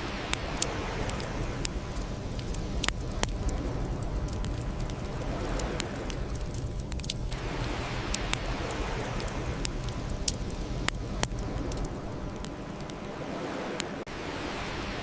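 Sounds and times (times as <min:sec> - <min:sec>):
bonfire pops and snaps: 0:00.0 - 0:14.0
low rush of burning: 0:00.0 - 0:15.0.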